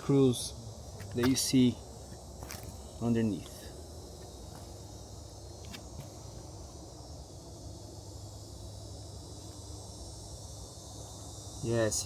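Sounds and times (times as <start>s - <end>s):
insects chirping: 0.0s - 12.0s
steady low hum: 0.0s - 12.0s.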